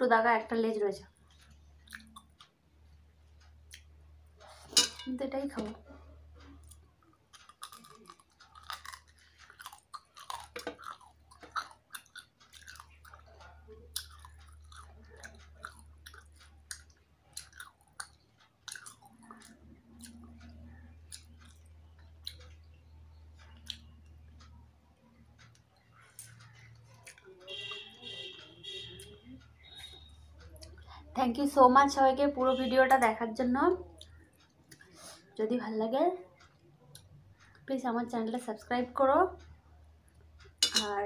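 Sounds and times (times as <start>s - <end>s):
low steady hum: 0.0s - 41.0s
person chewing food: 1.2s - 4.7s, 6.1s - 24.7s, 25.4s - 31.0s, 33.9s - 35.3s.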